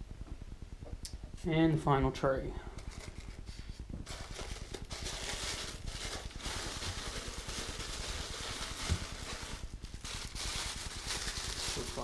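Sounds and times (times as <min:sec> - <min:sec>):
box packaging rustling and scraping: 0:02.8 - 0:12.0.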